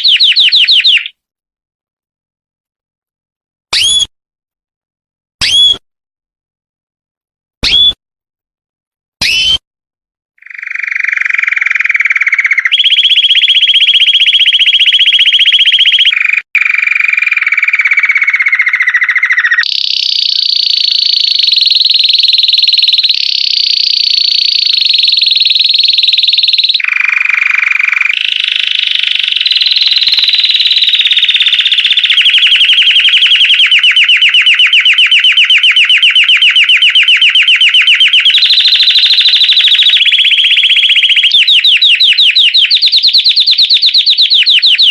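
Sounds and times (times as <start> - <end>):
canary singing trills: 0.0 - 1.2, 10.4 - 44.9.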